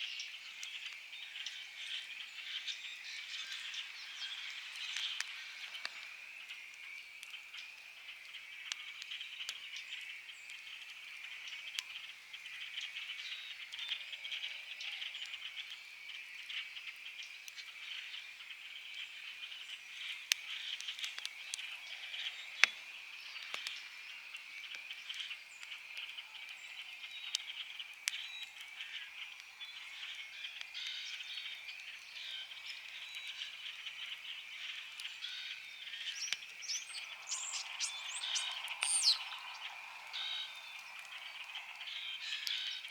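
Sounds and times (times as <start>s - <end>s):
campfire crackling and popping: 0.1s - 42.9s
frogs trilling: 19.4s - 42.9s.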